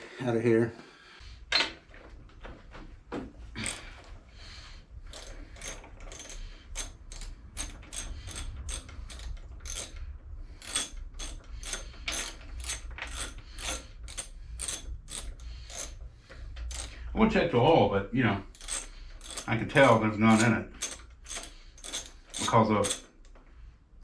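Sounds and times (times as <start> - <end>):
ratchet wrench clicking: 5.1 - 16.0, 16.6 - 17.0, 18.5 - 23.3.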